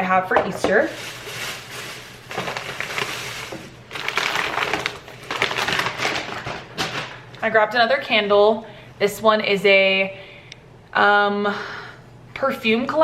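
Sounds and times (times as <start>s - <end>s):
packaging crinkling and rustling: 0.7s - 7.2s.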